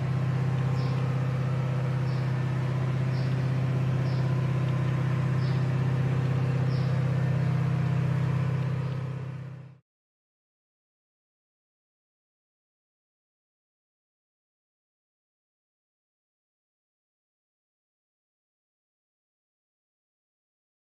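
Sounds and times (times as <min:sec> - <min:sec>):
engine running steadily: 0:00.0 - 0:09.8.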